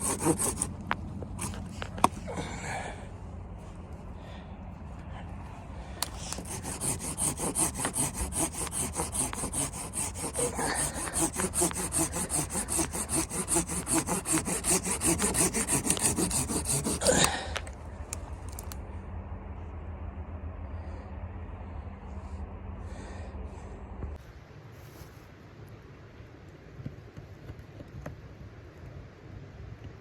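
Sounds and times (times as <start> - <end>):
hand saw cutting wood: 0.0 - 2.2, 6.0 - 17.5.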